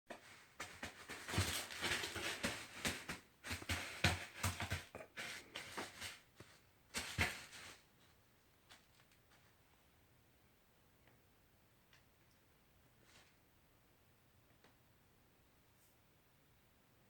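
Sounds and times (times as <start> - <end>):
cat litter being scraped: 0.1 - 7.9.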